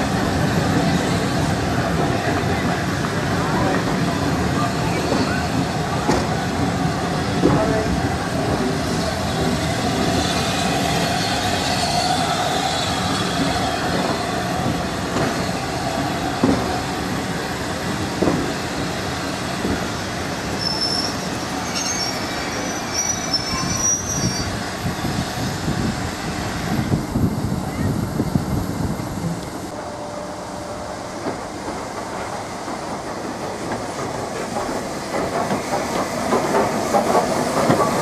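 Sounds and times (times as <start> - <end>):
train wheels rumbling on rails: 0.0 - 38.0
faint wheel squeal: 20.6 - 24.6.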